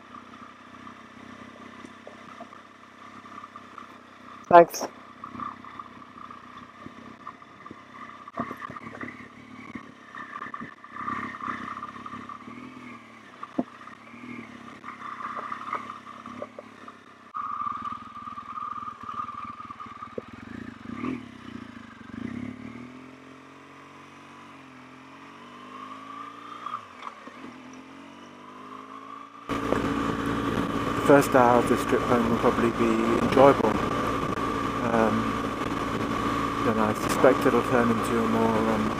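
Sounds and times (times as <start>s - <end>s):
motorcycle engine running: 0.0s - 38.9s
engine clatters and knocks: 13.4s - 13.8s, 14.8s - 20.7s, 29.5s - 38.9s.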